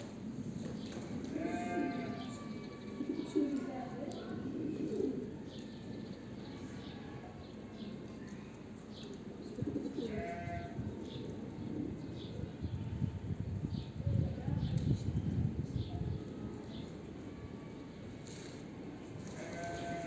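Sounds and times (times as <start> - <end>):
pigeons cooing: 0.2 - 2.3, 3.0 - 5.6, 9.4 - 12.8, 19.3 - 20.0.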